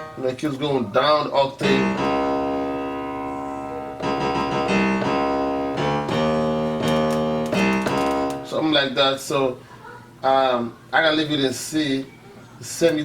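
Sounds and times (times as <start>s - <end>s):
piano-like keyboard notes and chords: 0.0s - 9.0s.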